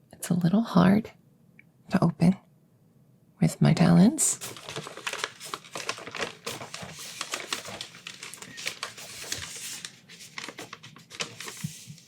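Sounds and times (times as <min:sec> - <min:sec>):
paper packaging crinkling: 0:04.4 - 0:12.0.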